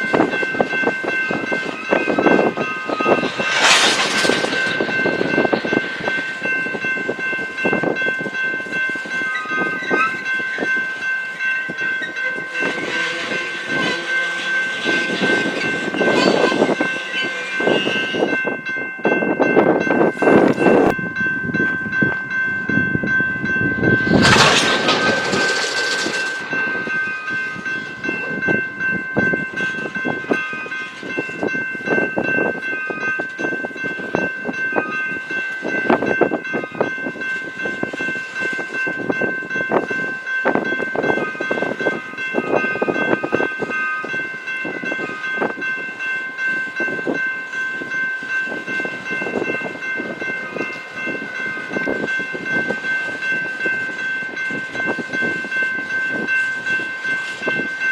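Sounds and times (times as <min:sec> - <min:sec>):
train wheels clattering over rails: 0:00.0 - 0:08.4, 0:23.8 - 0:28.6.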